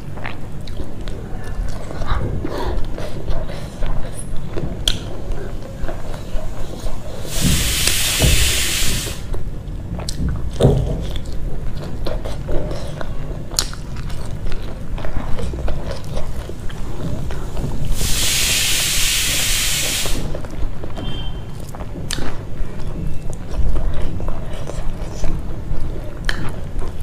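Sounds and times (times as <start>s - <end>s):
person chewing crunchy food: 0.0s - 18.3s, 20.0s - 27.0s.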